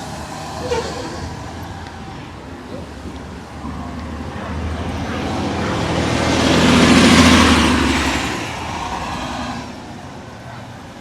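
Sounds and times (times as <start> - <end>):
vehicle passing by: 2.8 - 9.9.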